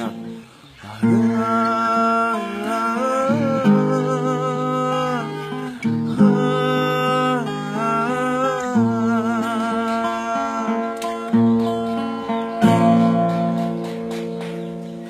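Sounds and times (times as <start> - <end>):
man humming: 0.0 - 11.8
acoustic guitar chords: 0.0 - 15.0.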